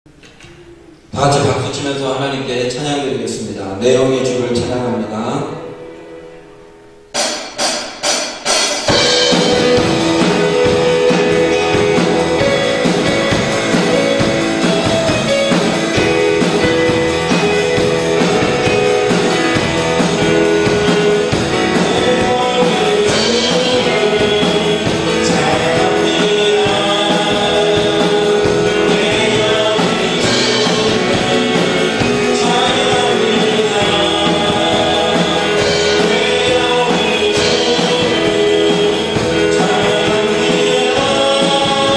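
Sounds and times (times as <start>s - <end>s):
worship band playing: 0.1s - 41.9s
voices singing along: 0.6s - 5.9s, 8.9s - 41.9s
electric guitar: 8.5s - 41.9s.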